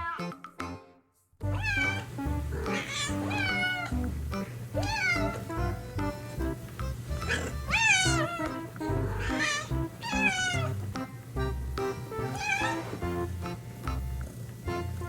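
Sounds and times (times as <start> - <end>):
cat meowing: 0.0 - 0.3, 1.5 - 4.0, 4.8 - 5.5, 7.2 - 10.8, 12.2 - 13.1
background music: 0.0 - 15.0.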